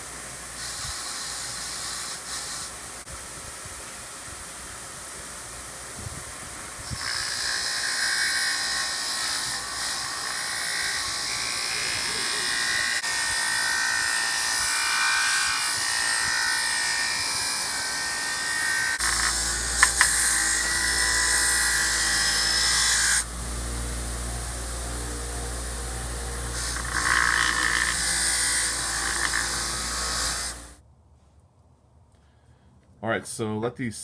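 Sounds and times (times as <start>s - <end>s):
small power tool on metal: 0.0s - 3.1s, 6.7s - 30.8s.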